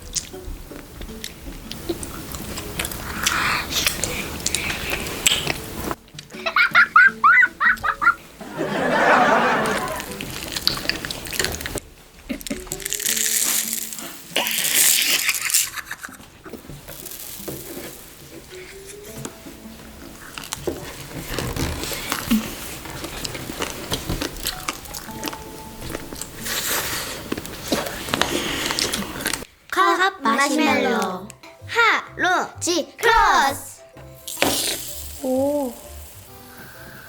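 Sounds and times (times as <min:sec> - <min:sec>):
background music: 0:00.0 - 0:37.0
crinkling and crunching: 0:10.0 - 0:19.3, 0:20.0 - 0:29.5
small clicks and crackles: 0:10.1 - 0:19.3, 0:20.2 - 0:29.5.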